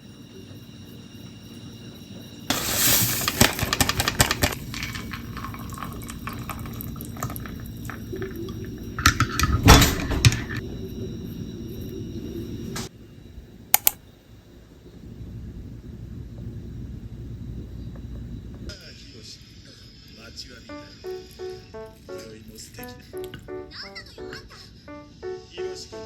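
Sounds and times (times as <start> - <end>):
dishes clattering: 2.5 - 10.6
water running from a tap: 2.5 - 12.9.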